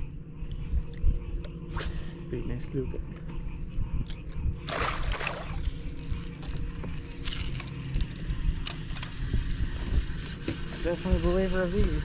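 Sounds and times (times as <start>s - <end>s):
steady low rumble: 0.0s - 12.0s
water splash: 4.7s - 5.6s.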